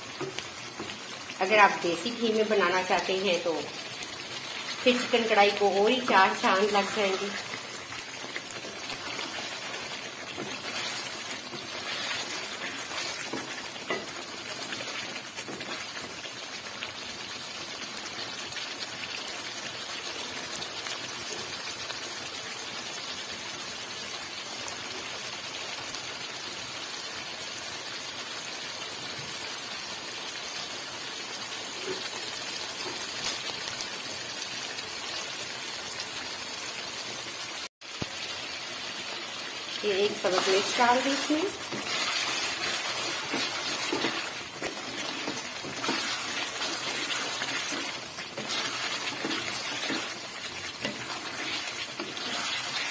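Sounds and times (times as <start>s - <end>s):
oil sizzling and bubbling: 0.0s - 52.9s
wooden spatula scraping: 4.4s - 16.1s, 39.9s - 52.9s.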